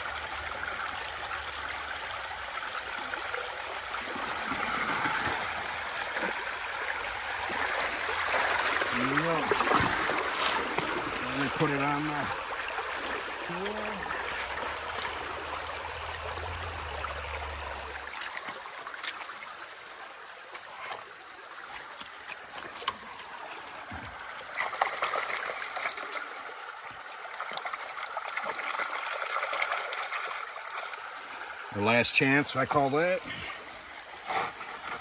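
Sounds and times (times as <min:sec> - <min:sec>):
river water rushing: 0:02.6 - 0:20.6, 0:27.4 - 0:35.0.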